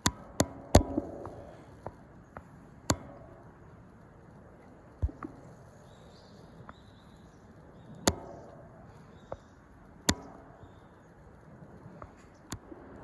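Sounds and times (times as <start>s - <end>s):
sharp knocks: 0.0s - 2.0s, 5.0s - 5.5s
low background noise: 0.0s - 13.0s.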